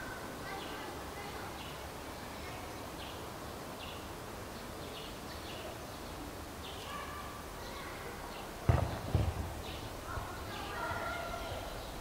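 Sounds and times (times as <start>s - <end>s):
low steady outdoor noise: 0.0s - 12.0s
small birds chirping: 0.0s - 12.0s
sharp thump: 8.7s - 9.8s.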